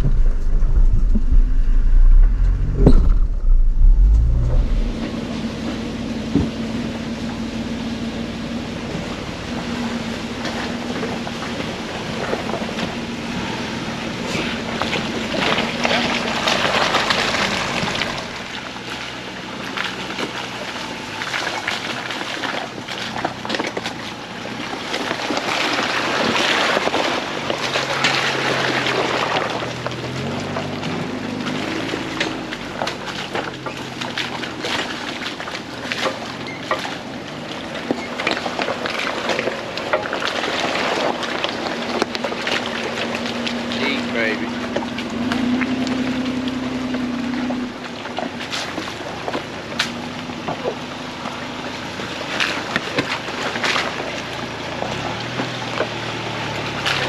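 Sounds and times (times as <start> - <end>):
tyre and wind noise: 0.0 - 6.8
vehicle engine revving: 0.0 - 57.0.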